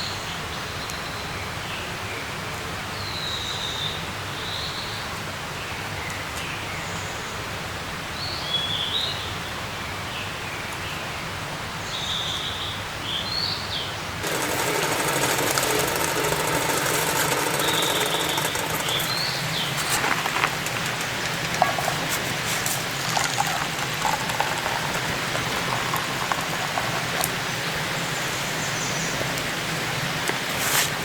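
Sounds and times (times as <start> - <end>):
birds chirping: 13.8 - 30.2
rain patter: 14.2 - 28.2
outdoor hiss: 14.2 - 31.0.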